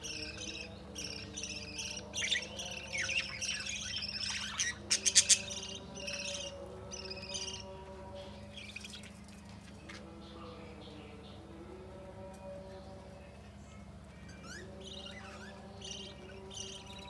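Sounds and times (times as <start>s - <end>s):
parrots chirping and chattering: 0.0s - 7.8s, 8.4s - 10.0s, 14.2s - 17.0s.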